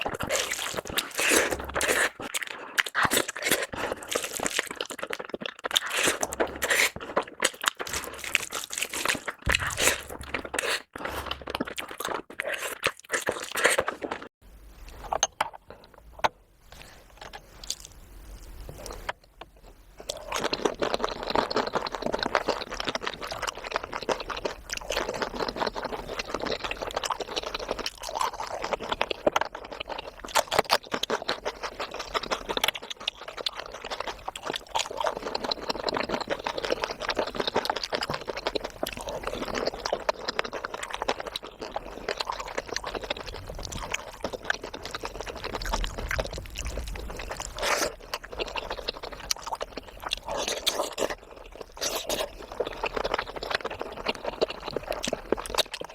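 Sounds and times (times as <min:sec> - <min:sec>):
wet chewing and mouth smacks: 0:00.0 - 0:14.3, 0:20.0 - 0:55.9.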